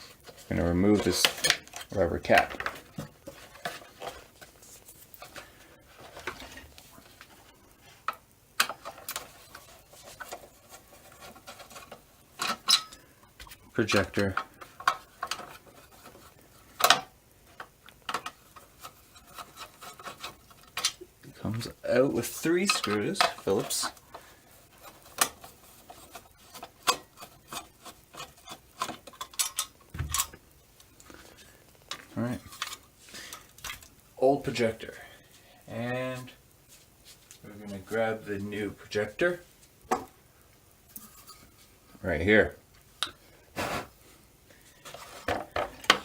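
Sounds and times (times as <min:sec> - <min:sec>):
plastic parts clicking and knocking: 0:00.3 - 0:04.3, 0:08.0 - 0:21.0, 0:22.6 - 0:30.4, 0:44.8 - 0:46.0.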